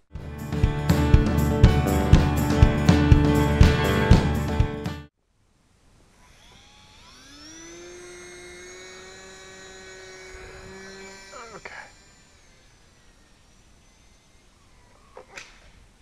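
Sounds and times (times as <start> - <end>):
electric motor and propeller whine: 6.1 - 16.0.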